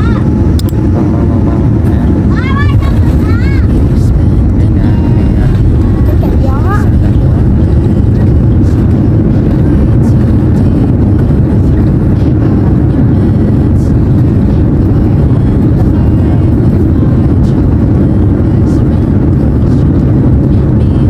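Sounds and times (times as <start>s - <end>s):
jet airliner cabin rumble: 0.0s - 21.0s.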